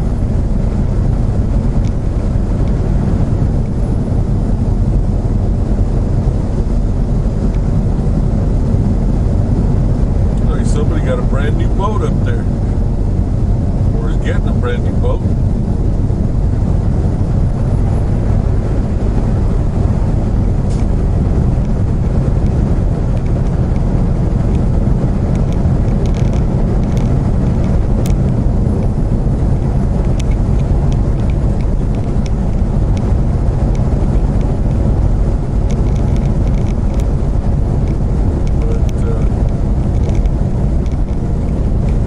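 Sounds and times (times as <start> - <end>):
truck engine and road rumble: 0.0 - 42.0
faint ticks: 30.1 - 33.1, 35.7 - 37.1, 37.8 - 41.6.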